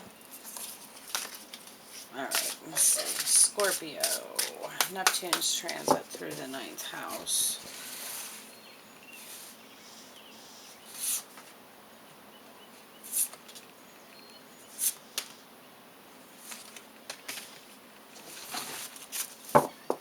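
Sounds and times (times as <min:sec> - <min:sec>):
cards being shuffled: 0:00.4 - 0:07.5
faint hiss: 0:01.8 - 0:11.4.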